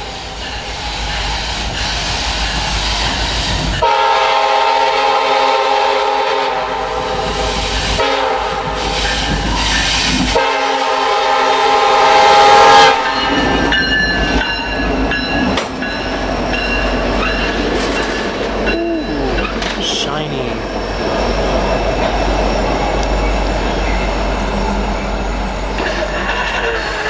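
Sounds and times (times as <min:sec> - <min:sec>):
train wheels clicking over rail joints: 0:00.0 - 0:03.8, 0:06.9 - 0:10.4, 0:13.2 - 0:20.0, 0:21.0 - 0:27.0
locomotive air horn blasts: 0:03.8 - 0:09.2, 0:10.3 - 0:13.2.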